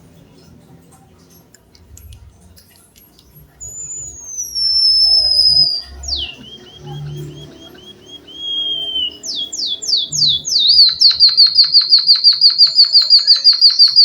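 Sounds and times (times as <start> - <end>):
high descending bird whistle: 3.6 - 14.0
bird clicks: 9.9 - 14.0.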